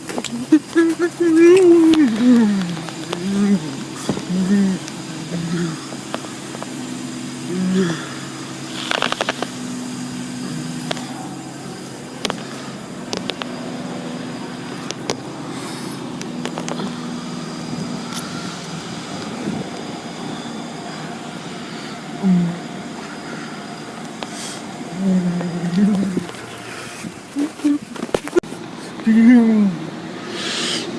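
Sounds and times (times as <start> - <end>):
low machine hum: 0.0 - 30.9
sharp clicks and knocks: 12.2 - 13.5.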